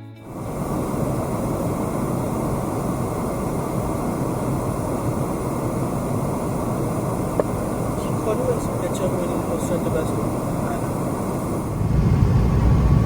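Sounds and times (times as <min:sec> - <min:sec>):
jet engines and airflow in cabin: 0:00.0 - 0:13.0.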